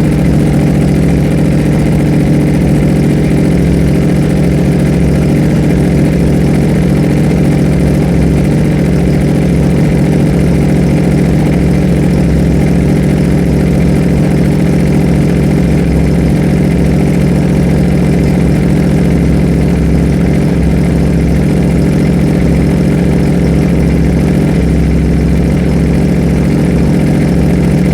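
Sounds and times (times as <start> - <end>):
motorcycle engine idling: 0.0 - 27.9.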